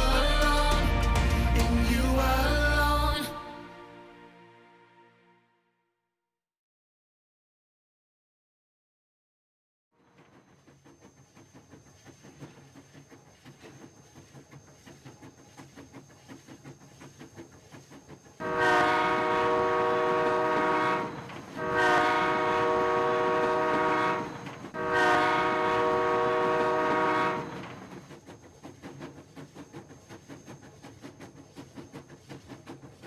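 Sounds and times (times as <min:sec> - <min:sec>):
train horn blasts: 0:18.4 - 0:27.9
faint rhythmic clatter: 0:27.5 - 0:33.0.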